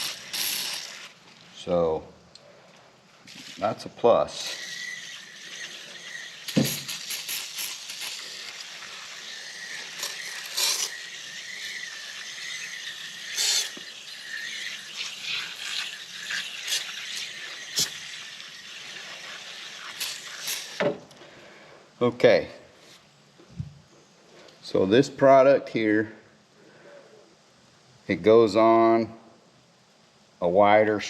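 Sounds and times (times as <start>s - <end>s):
aerosol spray hissing: 0.0s - 1.1s, 6.4s - 9.0s, 9.9s - 12.1s, 13.2s - 18.2s
background hiss: 0.0s - 31.0s.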